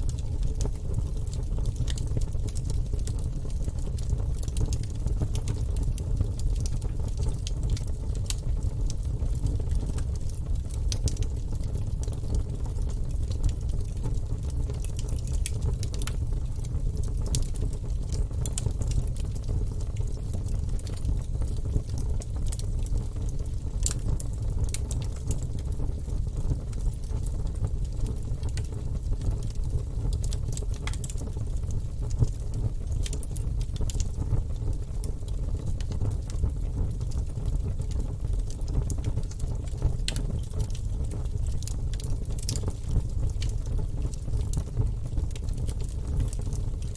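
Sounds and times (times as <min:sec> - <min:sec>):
logs crackling and snapping: 0:41.6 - 0:44.1.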